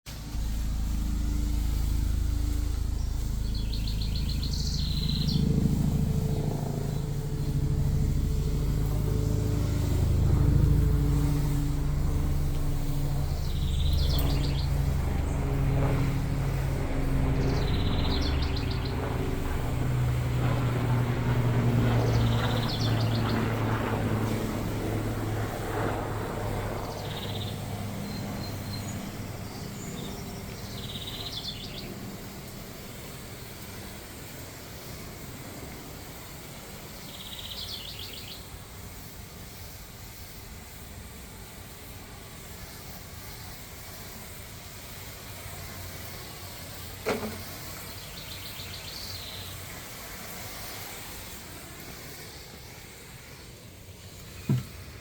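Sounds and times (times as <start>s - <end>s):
engine hum: 0.1s - 34.8s, 54.2s - 55.0s
bird trilled chirp: 0.6s - 19.2s.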